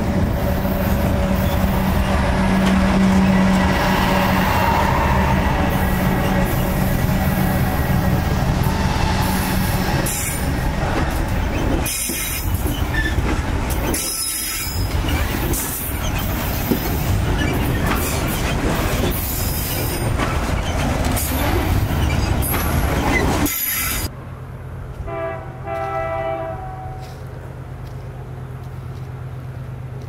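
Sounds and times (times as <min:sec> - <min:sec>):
locomotive engines rumbling: 0:00.0 - 0:30.0
train wheels squealing on rails: 0:00.6 - 0:24.1.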